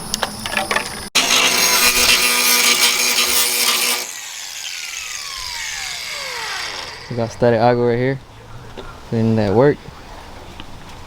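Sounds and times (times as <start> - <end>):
power grinder winding down: 1.2 - 7.4.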